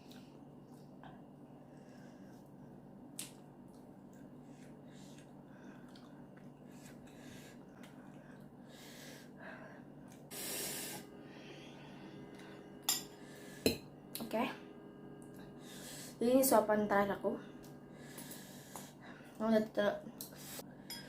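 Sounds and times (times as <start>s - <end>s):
person sniffing and breathing hard: 10.3s - 11.1s.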